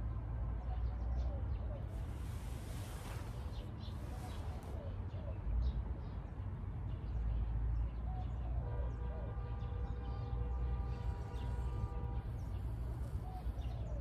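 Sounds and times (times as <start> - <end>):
low outdoor rumble: 8.8 - 14.0
small birds chirping: 9.6 - 14.0.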